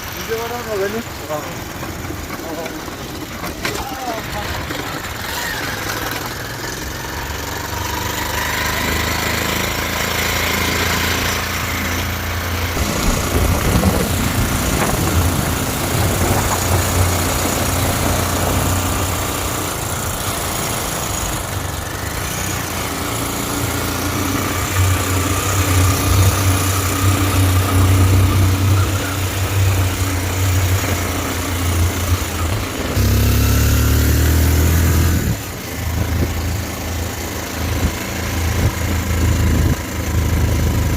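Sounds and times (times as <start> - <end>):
motorcycle engine running: 0.0 - 40.9
road and wind noise: 0.0 - 40.9.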